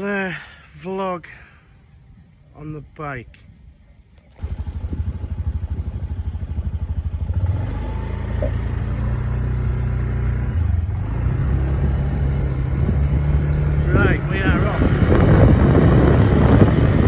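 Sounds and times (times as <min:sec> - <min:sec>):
motorcycle engine revving: 0:04.3 - 0:17.0.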